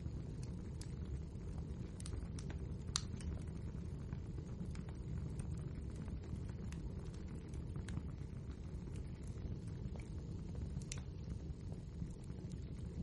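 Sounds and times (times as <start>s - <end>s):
fire flames rumbling: 0.0s - 13.0s
wood fire crackling and popping: 0.0s - 13.0s.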